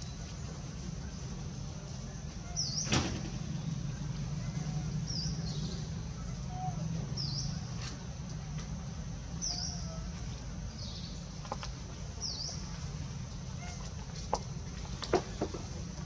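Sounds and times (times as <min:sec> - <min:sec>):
steady low rumble: 0:00.0 - 0:16.0
bird chirping: 0:03.5 - 0:07.7.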